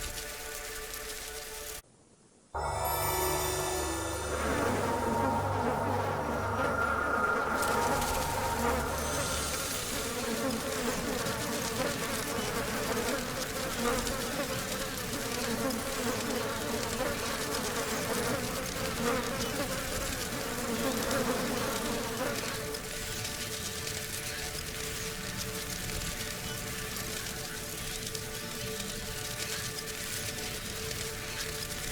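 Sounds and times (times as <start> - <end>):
insect buzzing: 4.8 - 25.6.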